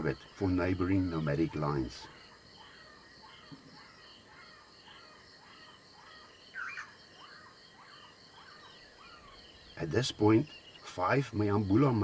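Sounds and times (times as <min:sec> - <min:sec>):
birds chirping: 0:00.0 - 0:12.0
insects chirring: 0:00.0 - 0:12.0
loud bird call: 0:00.0 - 0:12.0.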